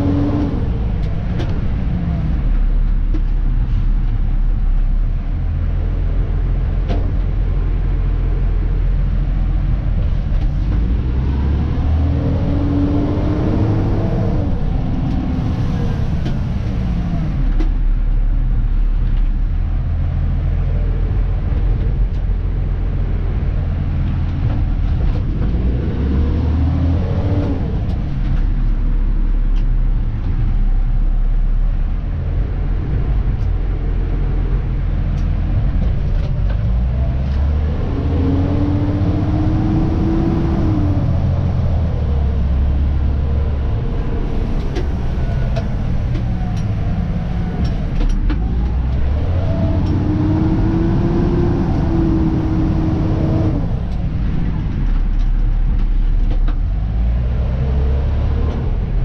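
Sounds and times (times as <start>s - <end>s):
truck diesel engine rumble: 0.0s - 59.0s
rising and falling tone: 36.6s - 55.1s.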